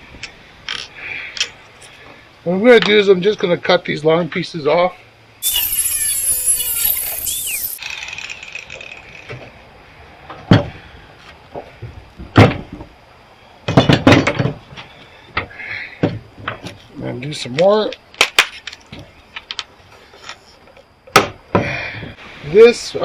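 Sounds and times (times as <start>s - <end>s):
power tool cutting metal: 5.4s - 8.4s.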